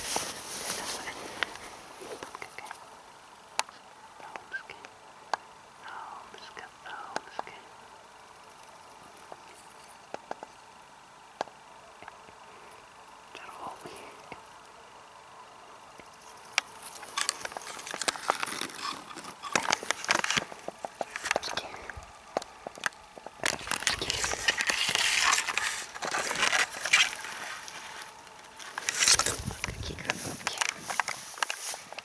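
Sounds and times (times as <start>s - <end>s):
grass and plant stems rustling: 0.0s - 2.9s, 15.9s - 32.0s.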